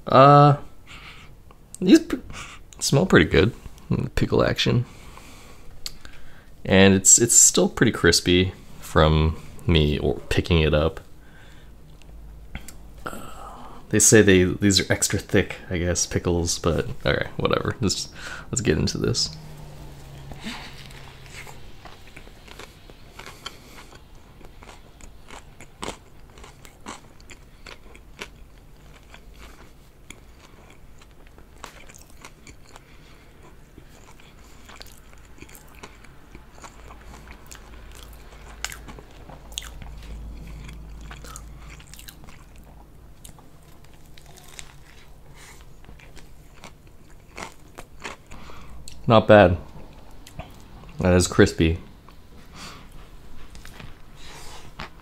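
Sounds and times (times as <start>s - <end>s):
wet chewing: 19.6s - 49.0s
crunches of crisp breading: 20.4s - 32.8s, 33.4s - 48.4s.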